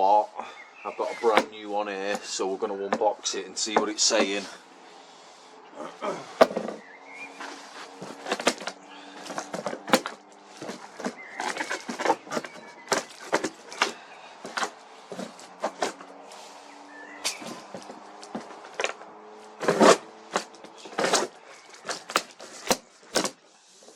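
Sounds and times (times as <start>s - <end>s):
cardboard box being handled: 6.4s - 16.1s.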